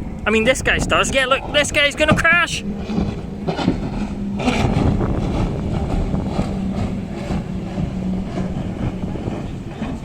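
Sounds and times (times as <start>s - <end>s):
powerboat engine droning: 0.0s - 10.0s
wind buffeting microphone: 0.0s - 10.0s.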